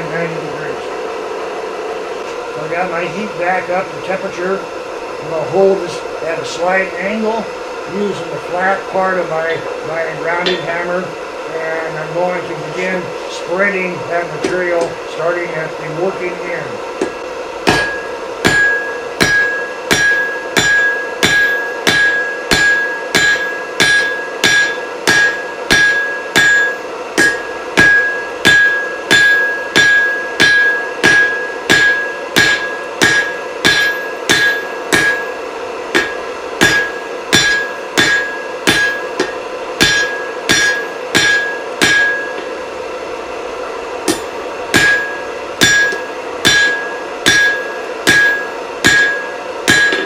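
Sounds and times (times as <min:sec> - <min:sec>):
steady hum: 0:00.0 - 0:50.0
hammer striking steel on anvil: 0:10.4 - 0:10.8, 0:17.0 - 0:42.6, 0:44.0 - 0:50.0.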